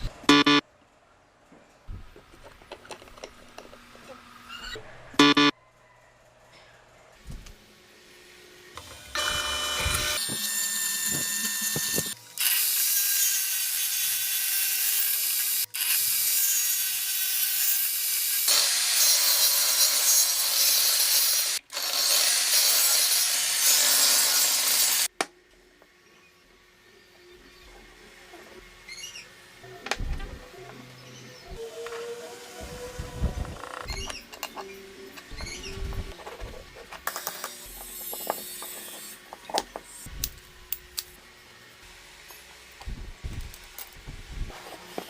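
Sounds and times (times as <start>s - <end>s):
power tool cutting wood: 8.7s - 25.1s, 31.1s - 34.0s.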